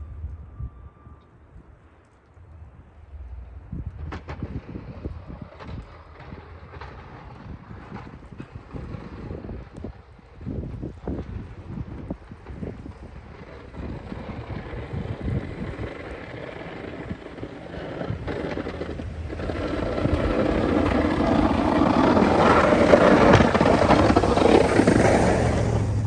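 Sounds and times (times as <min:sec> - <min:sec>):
wind buffeting microphone: 0:00.0 - 0:26.0
snow plow engine running: 0:11.2 - 0:26.0.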